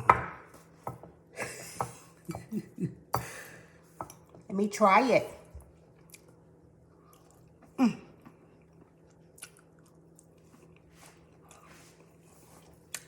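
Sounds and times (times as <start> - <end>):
person chewing: 6.0 - 6.4, 7.0 - 13.0.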